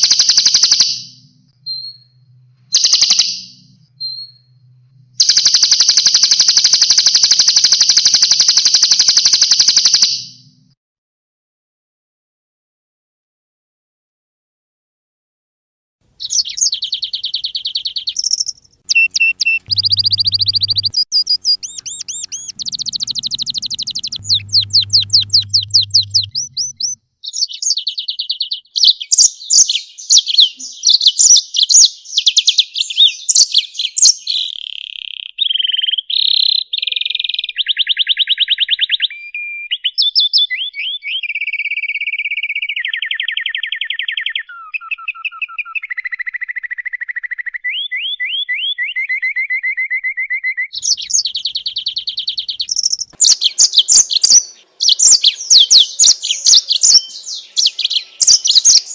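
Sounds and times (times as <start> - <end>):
songbird trills and chirps: 0.0 - 10.3, 16.2 - 41.6, 50.8 - 58.9
faint low hum: 1.1 - 2.8, 3.4 - 5.3, 16.1 - 27.0.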